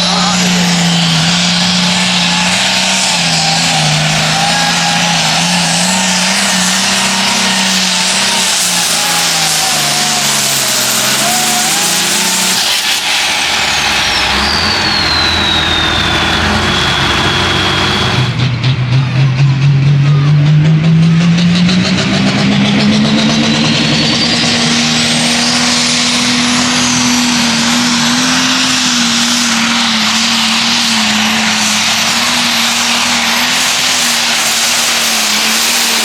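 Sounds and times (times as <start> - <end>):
diesel tractor engine at full throttle: 0.0 - 36.0
turbo whistle sliding down: 1.1 - 18.4.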